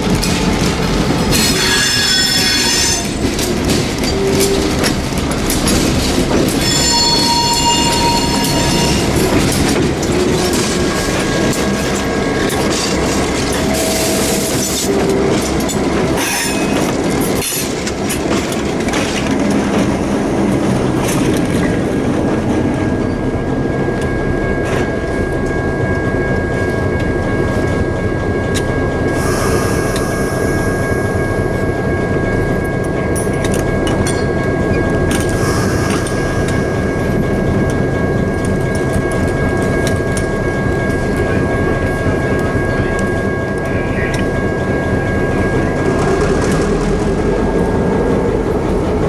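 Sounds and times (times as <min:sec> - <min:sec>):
clicking over rail joints: 0:00.0 - 0:21.8, 0:32.4 - 0:44.4
train wheels rumbling on rail: 0:00.0 - 0:49.0
high-pitched wheel squeal: 0:01.3 - 0:03.2, 0:06.6 - 0:09.6.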